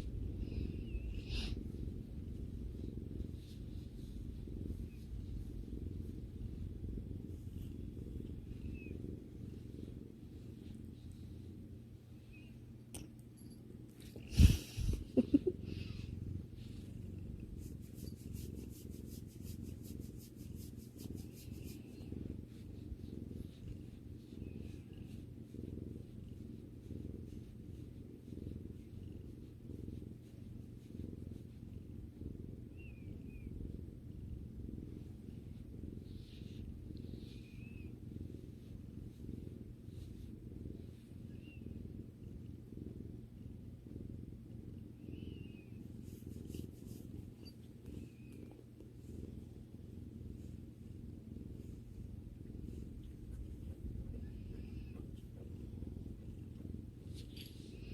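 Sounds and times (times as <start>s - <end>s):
cat purring: 0.0s - 57.9s.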